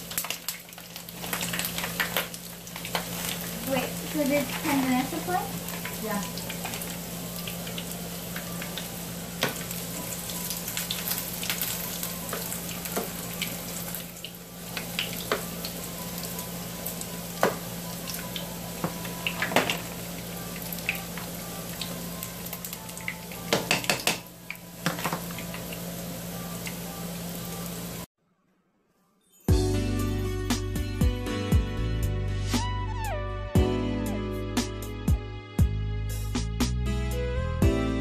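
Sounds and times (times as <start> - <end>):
oil popping and crackling: 0.0 - 16.4, 17.0 - 20.0
food sizzling in oil: 0.0 - 28.1.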